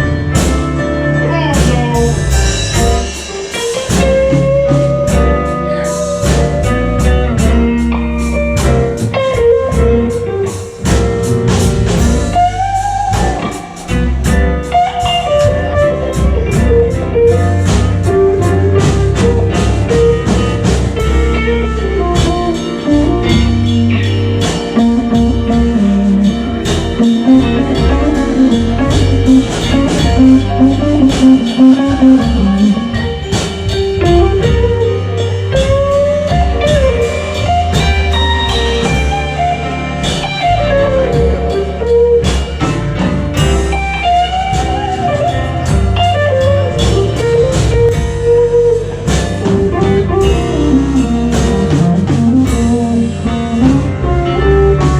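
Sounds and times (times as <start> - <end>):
bass guitar: 0.0 - 54.9
drum kit beat: 0.0 - 54.9
electric guitar solo: 24.9 - 42.6.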